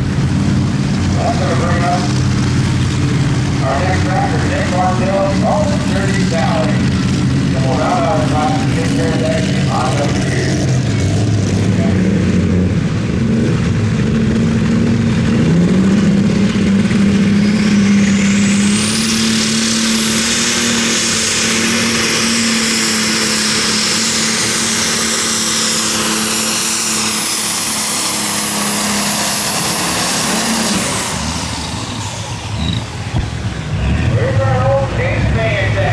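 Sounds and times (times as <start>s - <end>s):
high whine: 0.0s - 13.2s
tractor engine at full throttle: 0.0s - 35.9s.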